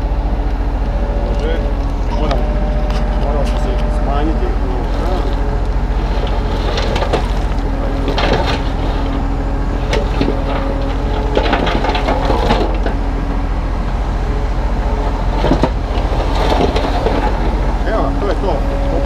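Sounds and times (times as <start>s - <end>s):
mini excavator running: 0.0s - 19.0s
bucket scraping the ground: 2.3s - 12.8s, 15.3s - 17.6s.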